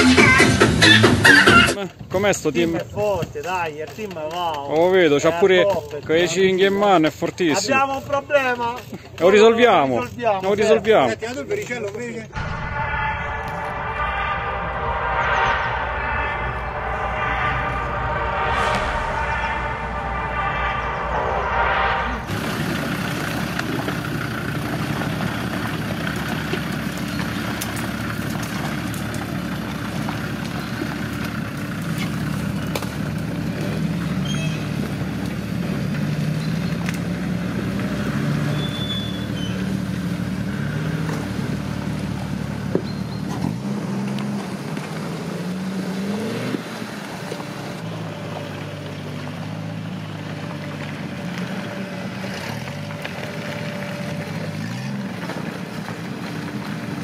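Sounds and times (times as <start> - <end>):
sharp knock: 12.4 - 16.8
off-road vehicle engine revving: 20.2 - 57.0.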